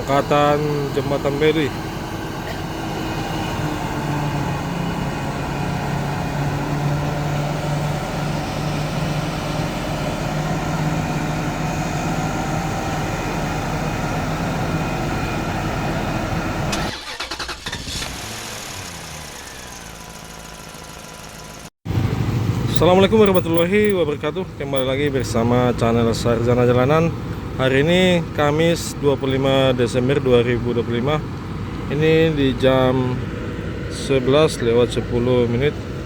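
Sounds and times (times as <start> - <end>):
heavy crane engine running: 0.0 - 16.8
quieter engine with pitch glides: 21.9 - 24.0.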